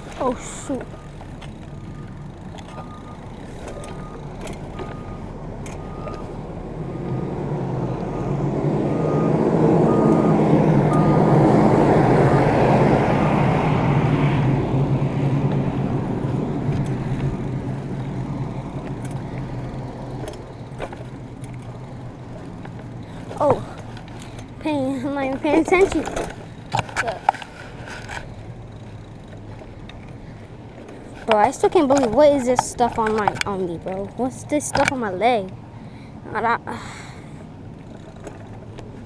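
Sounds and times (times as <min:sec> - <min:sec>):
diesel truck engine: 0:00.0 - 0:39.0
reversing alarm beeps: 0:01.8 - 0:06.3, 0:08.1 - 0:11.3.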